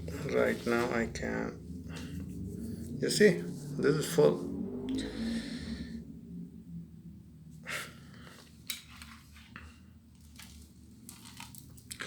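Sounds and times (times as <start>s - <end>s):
low hum: 0.0s - 8.7s.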